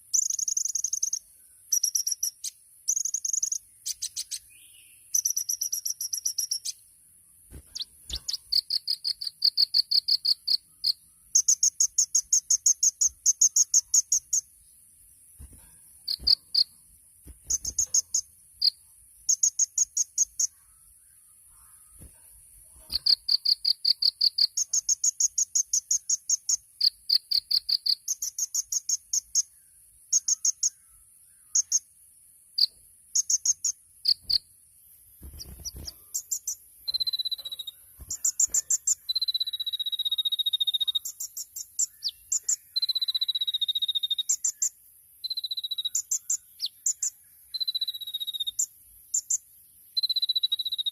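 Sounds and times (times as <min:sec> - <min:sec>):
bird buzzy trills: 0:00.0 - 0:04.5, 0:07.5 - 0:14.5, 0:15.4 - 0:29.4, 0:32.6 - 0:50.9
bird whistled notes: 0:35.4 - 0:48.7.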